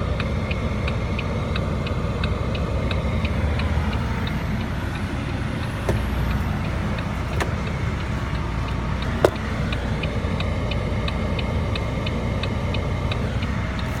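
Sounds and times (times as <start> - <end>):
diesel truck engine idling: 0.0 - 14.0.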